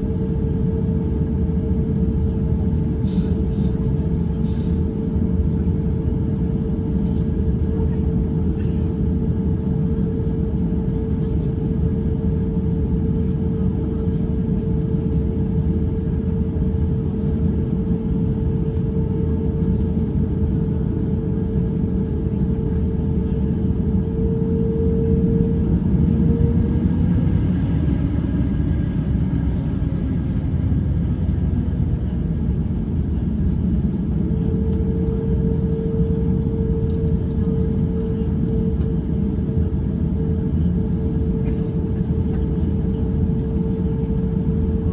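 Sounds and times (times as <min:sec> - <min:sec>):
airplane cabin rumble: 0:00.0 - 0:44.9
steady engine hum: 0:17.0 - 0:44.9.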